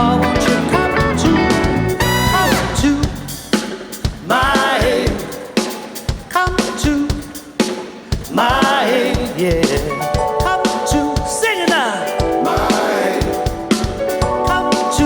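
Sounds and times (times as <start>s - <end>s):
wavering lead melody: 0.0s - 3.0s
bass: 0.0s - 3.6s
drum kit: 0.0s - 15.0s
live band music: 0.0s - 15.0s.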